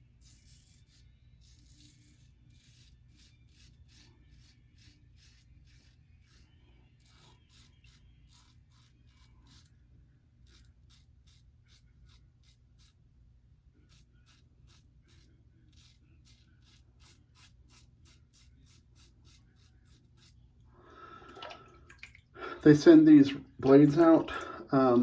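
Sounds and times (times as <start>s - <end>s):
razor scraping stubble: 0.0s - 9.8s, 10.4s - 13.1s, 13.8s - 20.6s.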